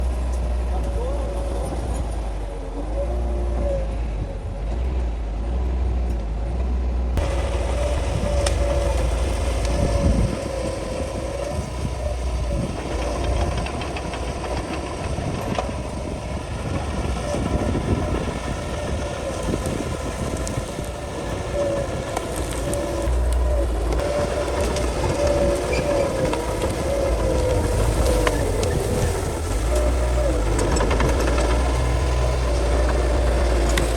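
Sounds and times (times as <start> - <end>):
bulldozer diesel engine under load: 0.0 - 33.9
clanks and cracks of brush: 7.2 - 33.9.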